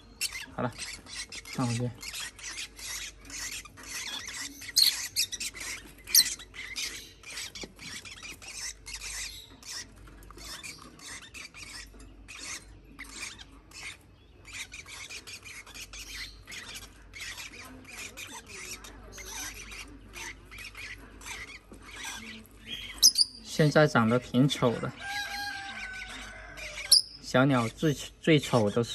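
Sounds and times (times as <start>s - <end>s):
shrill squawks: 0.0s - 23.5s
parrot chicks begging calls: 0.0s - 28.9s.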